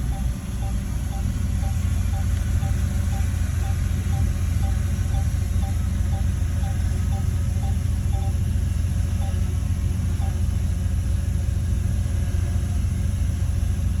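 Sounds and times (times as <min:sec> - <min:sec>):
faint high chirp: 0:00.0 - 0:08.4, 0:09.2 - 0:09.4, 0:10.2 - 0:10.4
diesel engine rumbling: 0:00.0 - 0:14.0.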